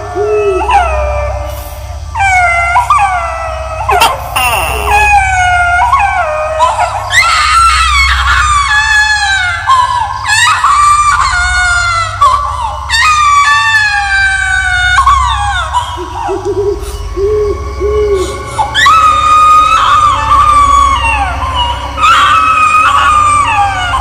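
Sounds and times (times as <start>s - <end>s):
baby crying and screaming: 0.0s - 24.0s
low drone: 0.0s - 24.0s.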